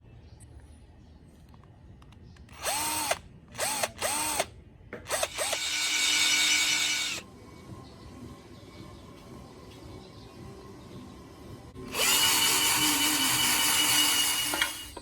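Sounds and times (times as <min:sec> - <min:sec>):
power drill whining: 0:02.5 - 0:04.5, 0:05.1 - 0:07.2, 0:11.8 - 0:15.0.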